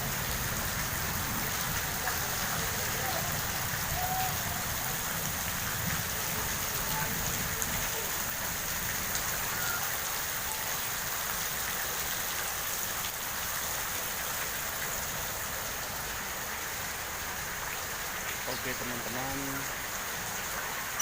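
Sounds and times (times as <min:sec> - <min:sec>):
heavy rain pouring: 0:00.0 - 0:21.0
faint drips and ticks: 0:05.2 - 0:13.2.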